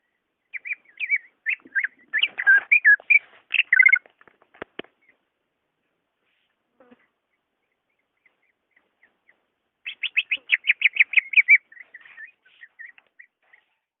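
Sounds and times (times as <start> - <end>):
bird singing sharp notes: 0.0 - 4.0, 7.7 - 13.8.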